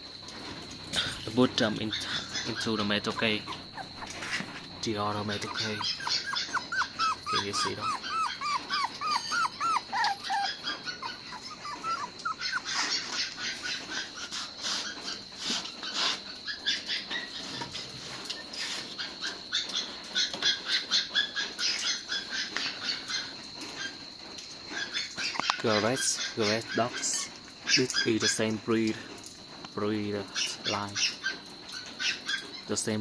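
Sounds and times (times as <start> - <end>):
scratching: 0.0 - 20.8
puppy whimpering: 1.6 - 15.2.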